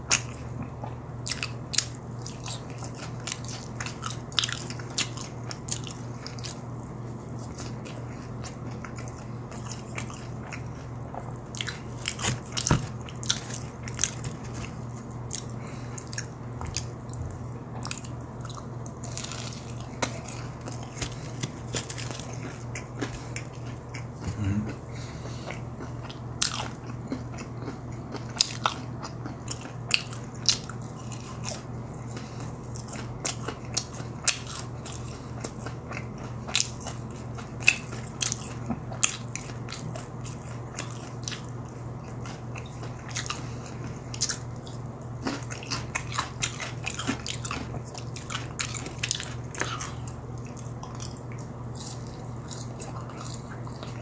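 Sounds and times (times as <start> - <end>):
person chewing crunchy food: 0.0 - 54.0
mouth sounds: 24.2 - 25.5.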